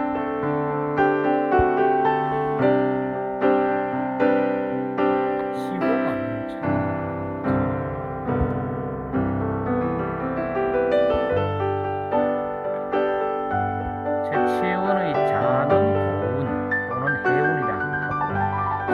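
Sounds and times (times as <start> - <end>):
piano music: 0.0 - 18.9.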